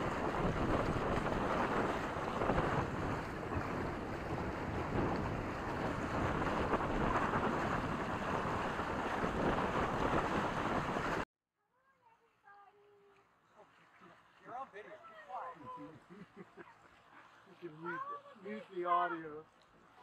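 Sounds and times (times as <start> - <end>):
wind buffeting microphone: 0.0 - 11.2
water rushing under boat: 0.0 - 11.3, 13.5 - 20.0.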